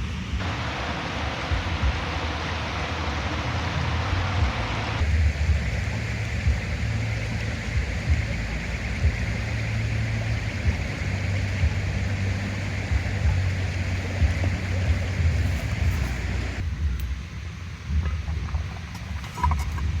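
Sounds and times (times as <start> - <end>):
wind rumble on microphone: 0.0 - 20.0
river rushing: 0.2 - 16.6.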